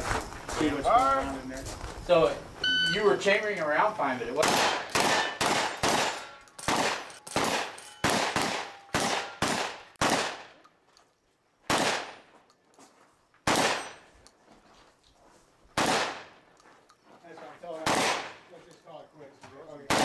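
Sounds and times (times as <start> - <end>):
shotgun shots: 4.4 - 10.6, 11.7 - 12.3, 13.4 - 14.0, 15.8 - 16.4, 17.8 - 18.4.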